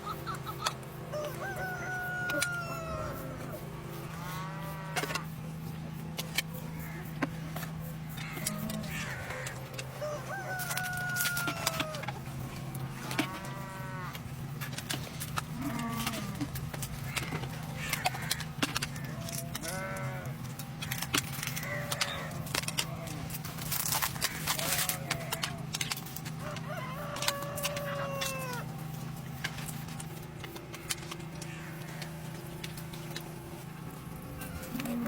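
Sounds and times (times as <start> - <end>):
chickens calling: 0.0 - 35.0
steady low hum: 0.0 - 35.0
rooster crowing: 1.1 - 3.6, 8.9 - 12.2, 26.3 - 28.7
scattered clicks: 14.1 - 28.7, 29.3 - 33.4.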